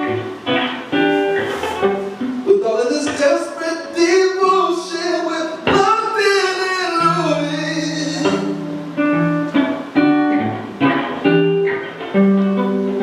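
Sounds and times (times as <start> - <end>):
acoustic guitar plucking: 0.0 - 13.0
person singing: 2.4 - 8.9.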